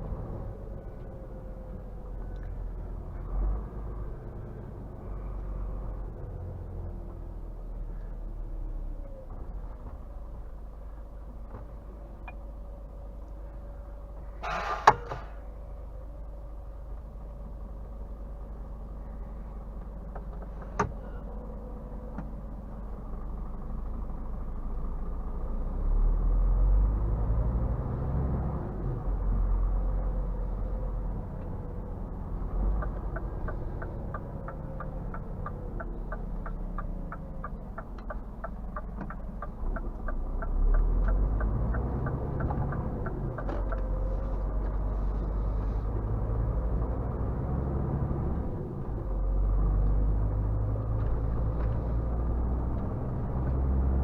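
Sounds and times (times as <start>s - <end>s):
truck diesel engine rumble: 0.0s - 54.0s
turn indicator ticking: 12.2s - 12.5s, 31.2s - 46.0s.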